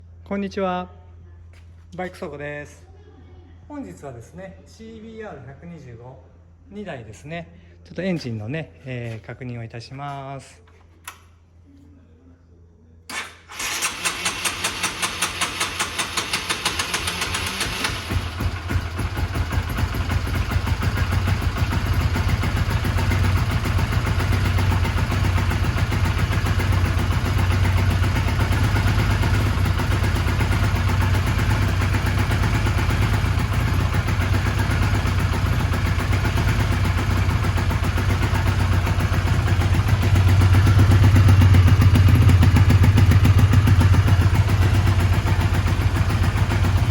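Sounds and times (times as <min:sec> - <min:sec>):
motorcycle engine cranking: 0:13.1 - 0:46.9
motorcycle engine idling: 0:13.6 - 0:46.9.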